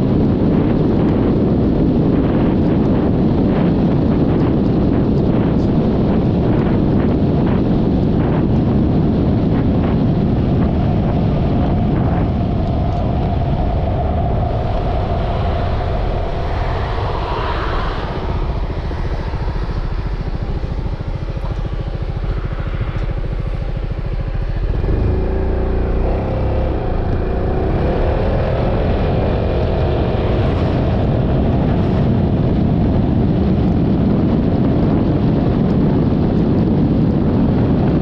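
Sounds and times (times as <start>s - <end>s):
road noise: 0.0s - 38.0s
wind buffeting on microphone: 0.0s - 38.0s
scooter engine: 18.8s - 33.8s.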